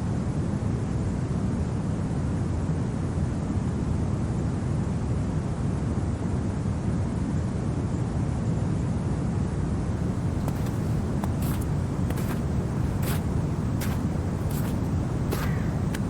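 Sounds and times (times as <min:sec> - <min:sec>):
faint clicks: 0:10.0 - 0:16.0
low wind rumble: 0:10.0 - 0:16.0.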